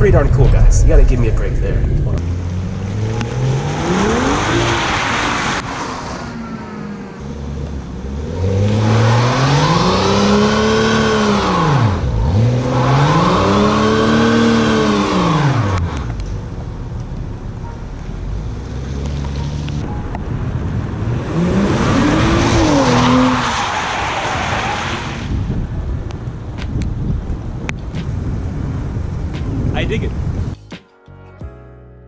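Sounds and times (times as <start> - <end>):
car engine revving hard: 2.2 - 6.2, 8.0 - 16.0, 20.9 - 25.2.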